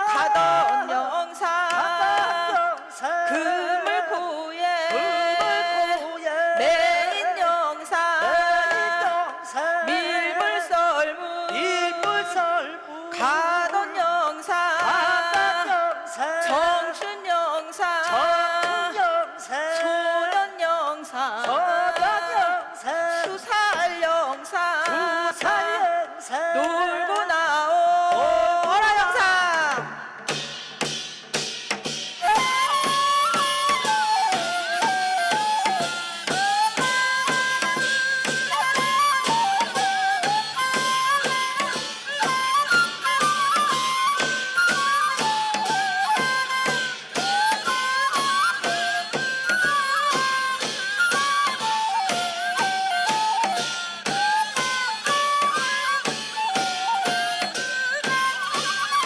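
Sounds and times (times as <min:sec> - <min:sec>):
steady drum strokes: 0:29.7 - 0:59.0
ornamented wind instrument melody: 0:32.2 - 0:59.0.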